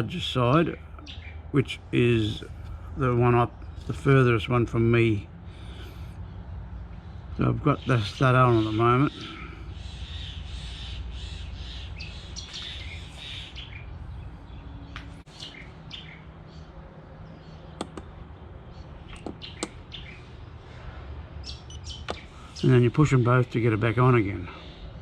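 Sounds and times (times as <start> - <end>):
birds chirping: 0.0 - 25.0
sharp clicks: 17.8 - 18.2, 19.1 - 19.8.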